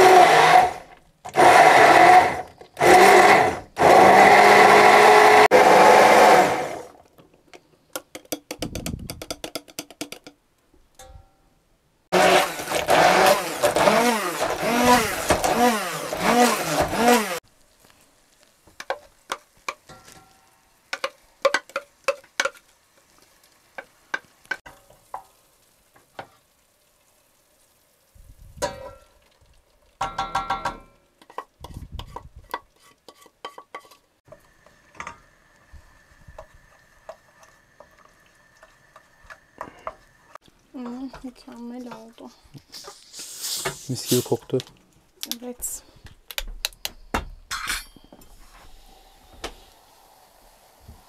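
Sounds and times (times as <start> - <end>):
utensils knocking pans and dishes: 18.8 - 22.6, 30.0 - 31.4.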